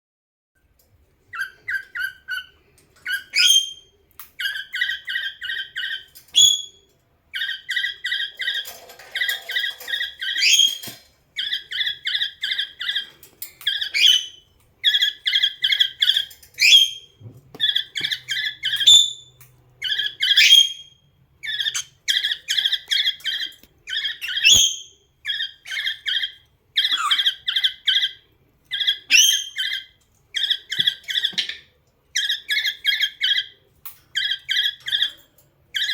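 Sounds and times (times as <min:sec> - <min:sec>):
cockatiel whistling: 0:17.6 - 0:28.2.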